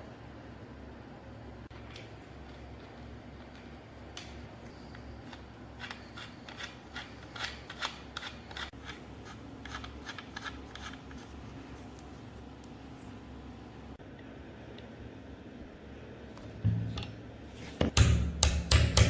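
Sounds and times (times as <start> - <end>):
low steady hum: 0.0 - 19.0
hand tool clicking and scraping: 4.2 - 11.2.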